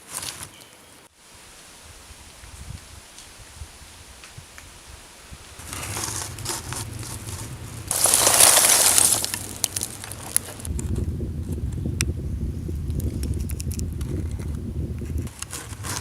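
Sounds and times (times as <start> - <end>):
crunching handling noise: 5.6 - 11.0, 12.9 - 16.0.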